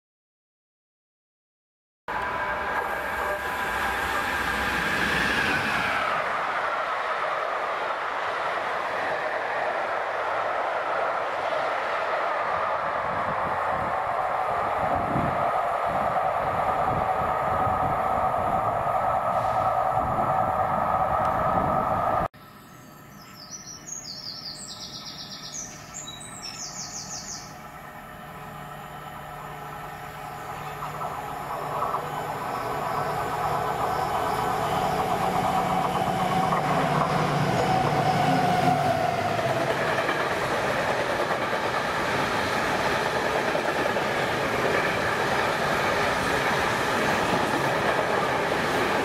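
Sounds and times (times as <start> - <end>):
diesel train passing: 2.1 - 49.0
wheel and rail noise: 2.1 - 49.0
birds chirping: 22.4 - 27.6.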